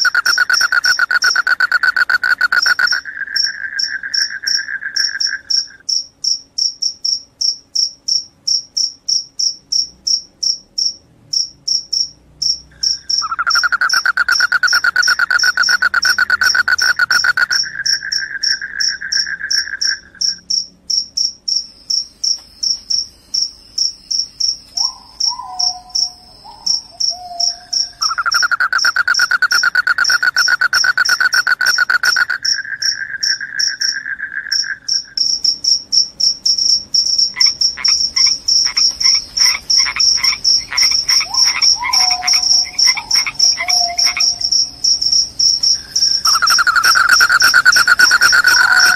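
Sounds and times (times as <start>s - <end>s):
low continuous trill: 0.0s - 25.3s
crickets chirping: 0.0s - 48.9s.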